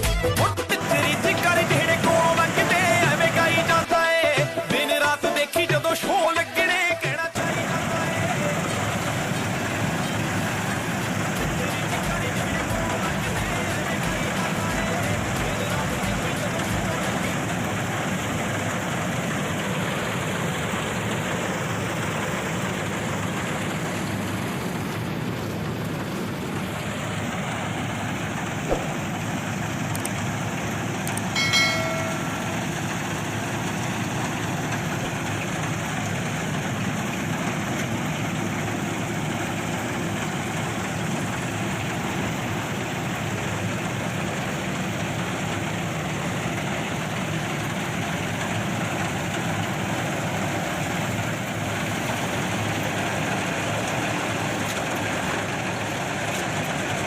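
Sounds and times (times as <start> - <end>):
short pitched tone: 31.3 - 32.7.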